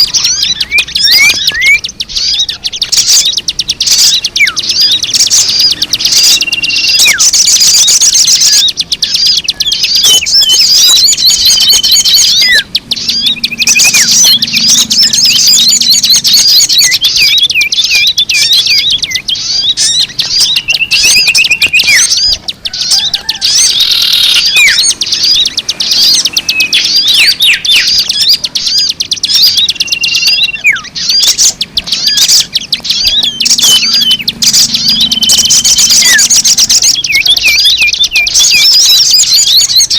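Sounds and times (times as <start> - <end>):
many birds chirping: 0.0 - 39.9.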